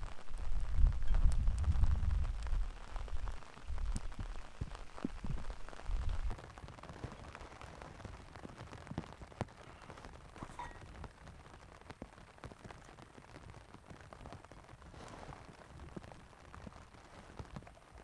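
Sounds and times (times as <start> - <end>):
thunder rumbling: 0.0 - 8.1
rain pattering on a tent: 0.0 - 18.0.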